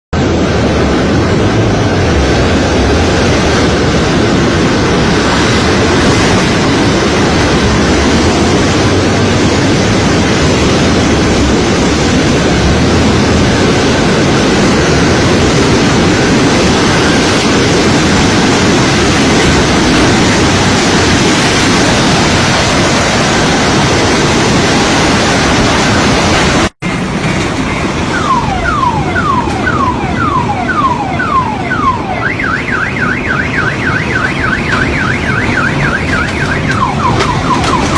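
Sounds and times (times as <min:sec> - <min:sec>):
loud steady rushing noise: 0:00.1 - 0:37.9
alarm chirping: 0:28.1 - 0:37.9.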